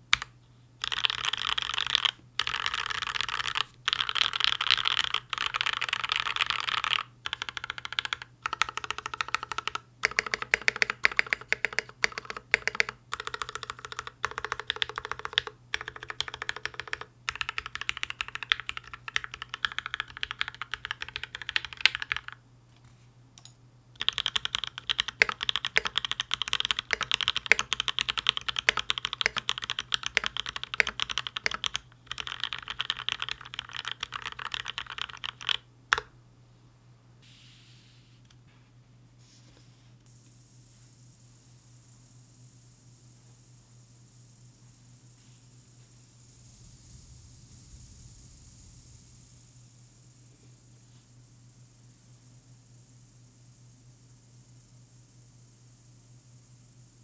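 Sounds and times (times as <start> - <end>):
mechanical keyboard typing: 0.1 - 22.4, 24.0 - 36.1.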